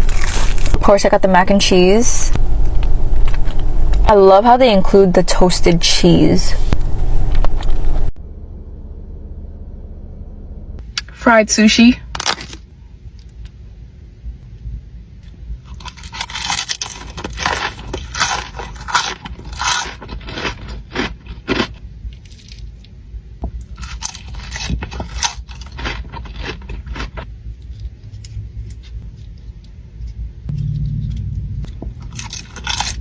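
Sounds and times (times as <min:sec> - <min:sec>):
crunchy chewing close up: 0:00.0 - 0:00.8, 0:15.6 - 0:22.9, 0:23.6 - 0:29.7.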